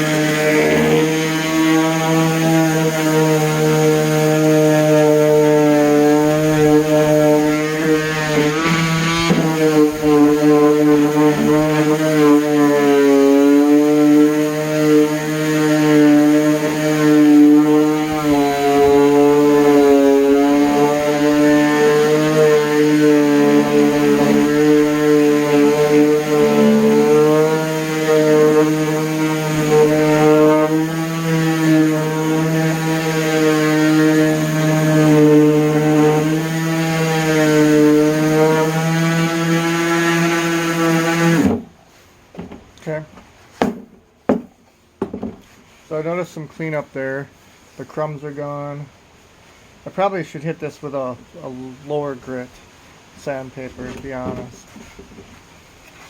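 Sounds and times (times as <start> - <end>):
orbital sander on wood: 0.0 - 46.8.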